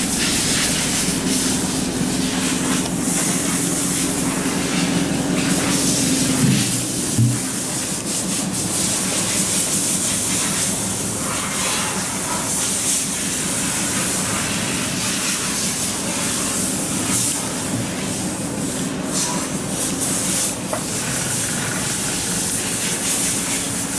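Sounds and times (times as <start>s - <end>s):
diesel engine idling: 0.0s - 7.1s.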